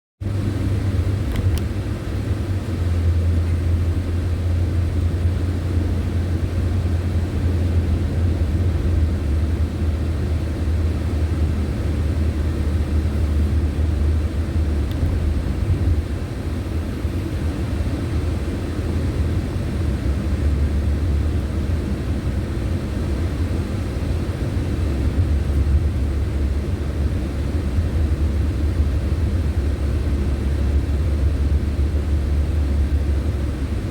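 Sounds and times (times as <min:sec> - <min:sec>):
car road rumble: 0:00.2 - 0:33.9.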